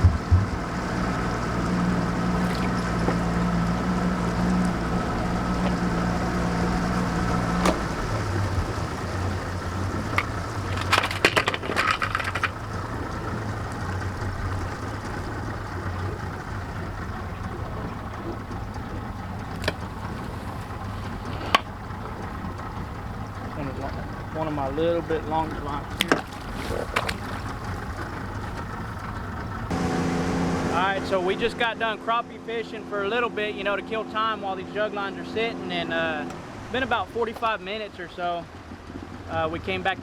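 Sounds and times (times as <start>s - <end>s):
clattering: 0.0s - 22.7s
boat motor running: 0.0s - 40.0s.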